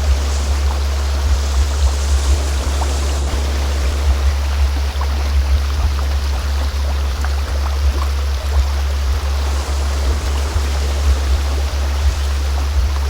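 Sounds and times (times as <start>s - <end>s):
deep low-pitched tone: 0.0s - 13.0s
stream water flowing: 0.0s - 13.0s.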